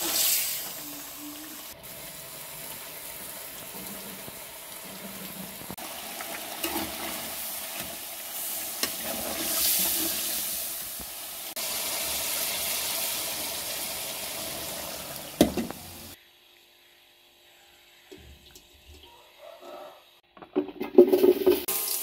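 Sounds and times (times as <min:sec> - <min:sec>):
chicken sizzling in hot oil: 0:00.0 - 0:16.2, 0:21.2 - 0:22.0.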